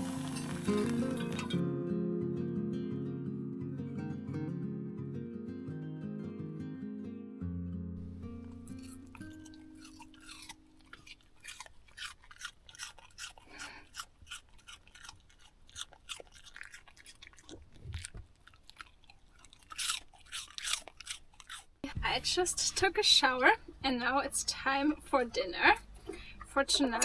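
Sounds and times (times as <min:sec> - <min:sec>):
guitar music: 0:00.0 - 0:10.9
crunching and clicking: 0:08.5 - 0:21.7.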